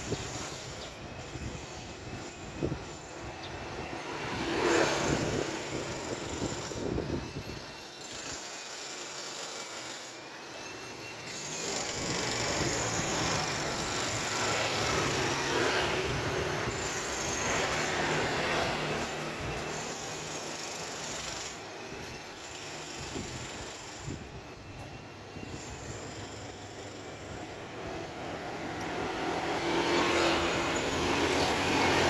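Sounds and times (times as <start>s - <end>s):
passing vehicle engines: 27.6s - 32.0s.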